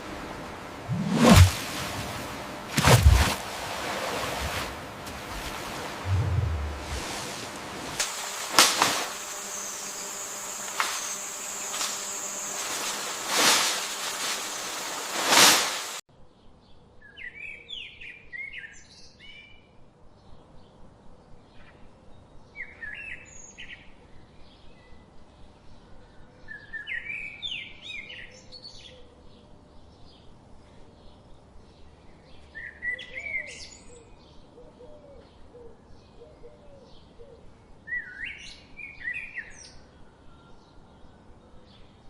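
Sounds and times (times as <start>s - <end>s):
loud rushing noise: 0.8s - 1.8s, 6.0s - 16.0s
sharp cracks: 7.9s - 16.0s.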